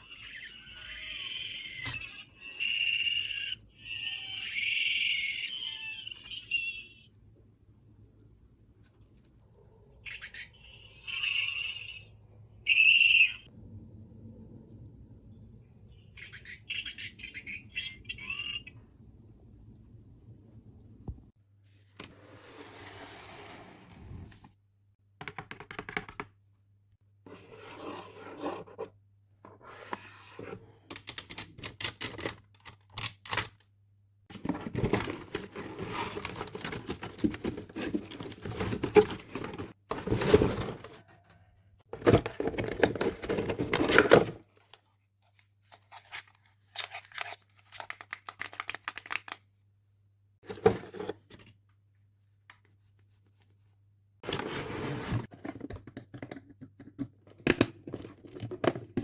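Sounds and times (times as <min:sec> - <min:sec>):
plastic parts clicking: 0:30.9 - 0:33.6, 0:46.8 - 0:49.5
packaging tearing and rustling: 0:34.4 - 0:40.8.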